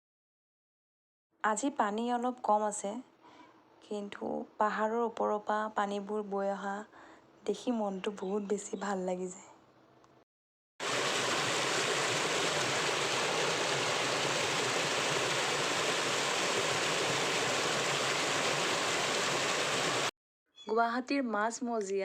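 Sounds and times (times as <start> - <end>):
waterfall rushing and splashing: 10.8 - 20.1.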